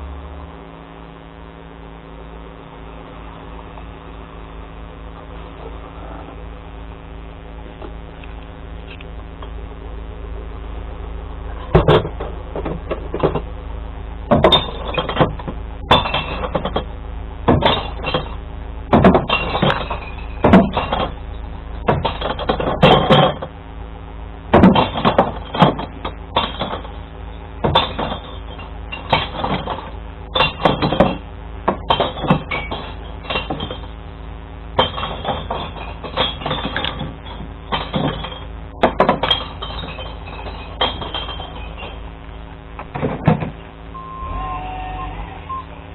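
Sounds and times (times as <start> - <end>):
glass bottles crashing: 14.3 - 16.9, 17.5 - 23.5, 24.6 - 34.0, 34.8 - 42.1.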